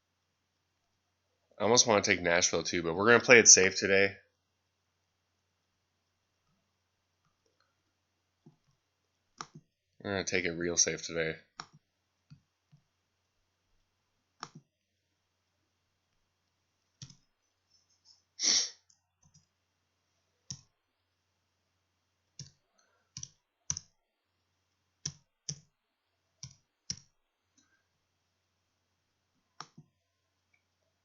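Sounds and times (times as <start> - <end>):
computer mouse clicking: 9.4 - 9.7, 11.6 - 12.8, 14.4 - 14.7, 17.0 - 17.2, 18.9 - 19.5, 20.5 - 20.7, 22.4 - 23.9, 25.0 - 25.7, 26.4 - 27.1, 29.6 - 29.9.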